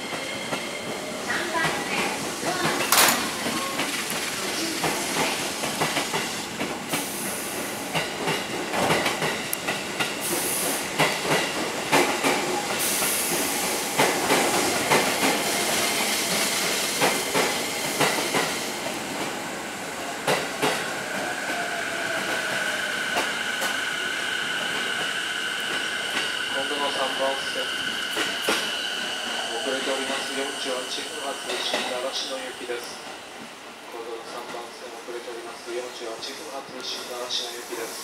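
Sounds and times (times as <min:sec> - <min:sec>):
train rumble: 0:00.0 - 0:38.0
train wheels clacking over rail joints: 0:01.5 - 0:07.1.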